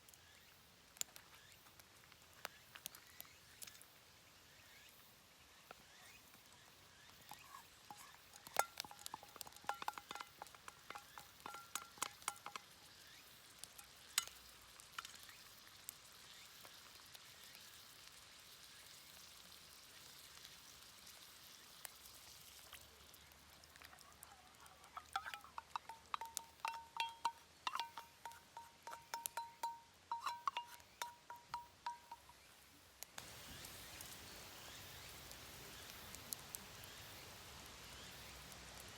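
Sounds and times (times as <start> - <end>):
food sizzling in a pan: 0.0 - 38.9
metal utensil clinking on cookware: 7.3 - 12.8, 24.8 - 32.3.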